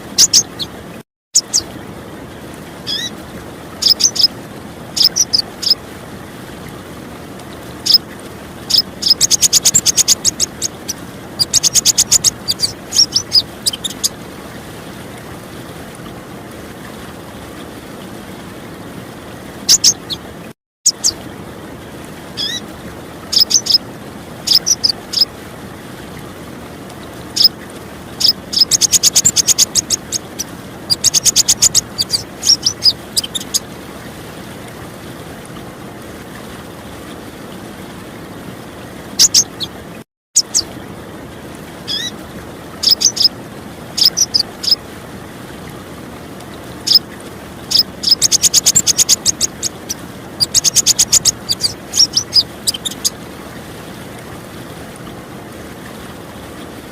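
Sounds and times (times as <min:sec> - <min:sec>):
bird chip calls: 0:00.0 - 0:00.8, 0:01.4 - 0:01.7, 0:02.9 - 0:03.1, 0:03.8 - 0:04.4, 0:05.0 - 0:05.8, 0:07.8 - 0:08.0, 0:08.7 - 0:14.2, 0:19.7 - 0:20.2, 0:20.9 - 0:21.2, 0:22.4 - 0:22.6, 0:23.3 - 0:23.8, 0:24.5 - 0:25.3, 0:28.2 - 0:33.6, 0:39.2 - 0:39.8, 0:40.4 - 0:40.7, 0:41.9 - 0:42.1, 0:42.8 - 0:43.3, 0:44.0 - 0:44.8, 0:47.7 - 0:53.2
running water rushing: 0:00.0 - 0:56.9.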